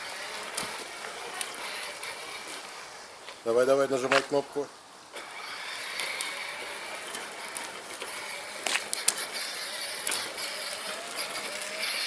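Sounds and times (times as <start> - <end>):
toy electric motor whirring: 0.0 - 2.8, 5.2 - 12.0.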